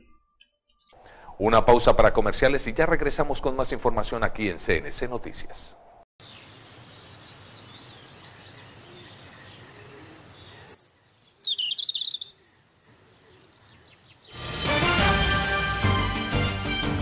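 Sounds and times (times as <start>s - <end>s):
birds chirping: 2.4s - 14.4s
music: 14.4s - 17.0s.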